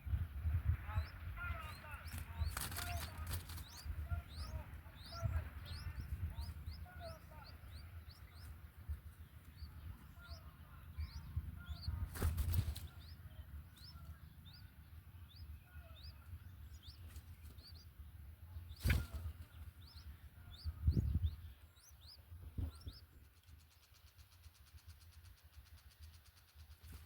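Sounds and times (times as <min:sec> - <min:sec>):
small bird chirping: 0:00.4 - 0:27.0
rustles and bumps: 0:11.7 - 0:13.1.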